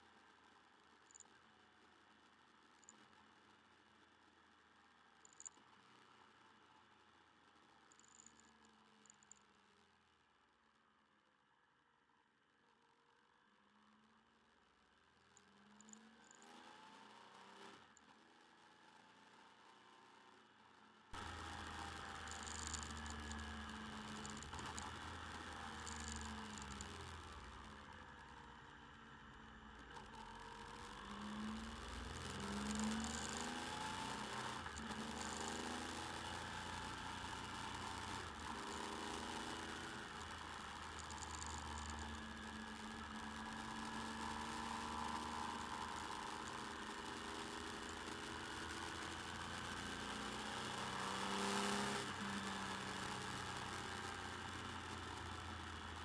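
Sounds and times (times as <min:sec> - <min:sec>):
motorcycle engine accelerating: 0:21.2 - 0:56.0.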